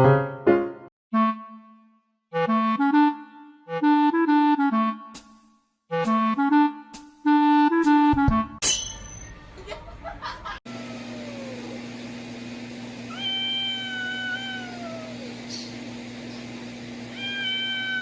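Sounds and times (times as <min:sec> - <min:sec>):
cat meowing: 0:10.8 - 0:11.8, 0:13.1 - 0:15.4, 0:17.1 - 0:18.0.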